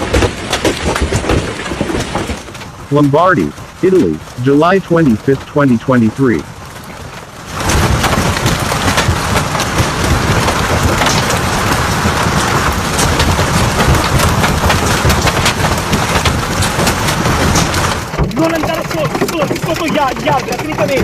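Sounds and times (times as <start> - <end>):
sharp little impacts: 0.0 - 21.0
deep rumble: 0.8 - 21.0
heavy downpour hiss: 1.9 - 21.0.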